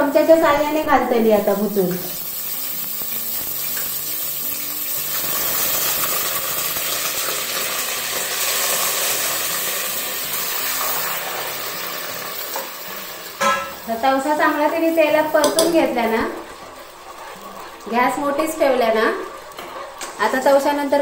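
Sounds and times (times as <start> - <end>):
cucumber sizzling in hot oil: 0.0 - 21.0.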